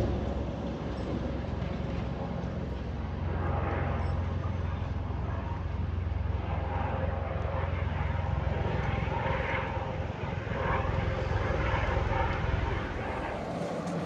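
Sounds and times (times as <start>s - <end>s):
tram running rumble: 12.4s - 14.0s.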